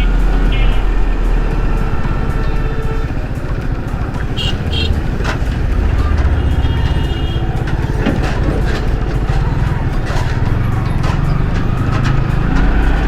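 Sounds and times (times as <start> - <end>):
wind and road noise: 0.0 - 13.0
motorcycle engine running: 2.1 - 12.3.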